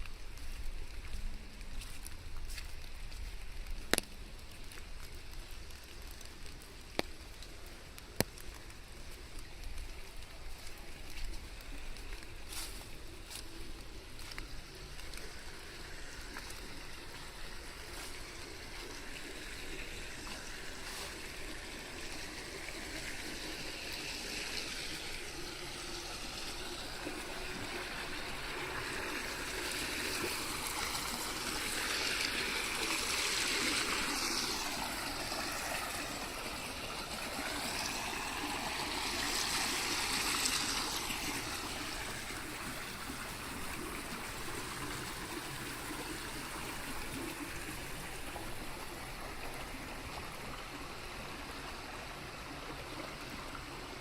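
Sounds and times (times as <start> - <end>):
rainwater running and trickling: 0.0 - 54.0.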